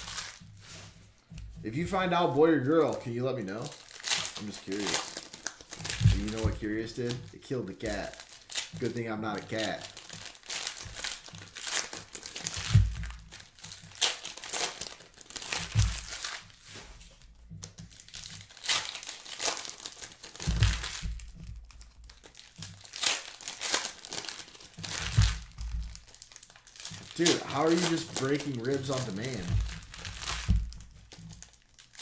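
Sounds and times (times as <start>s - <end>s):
plastic wrappers crinkling and tearing: 0.0s - 32.0s
dull low thumps: 5.8s - 7.0s, 20.4s - 22.0s, 29.4s - 31.0s.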